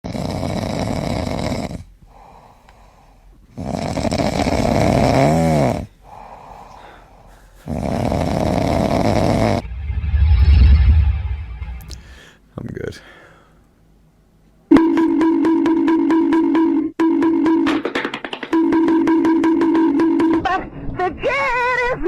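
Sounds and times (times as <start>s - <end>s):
dog snoring: 0.0s - 1.9s, 3.5s - 5.9s, 7.6s - 9.6s.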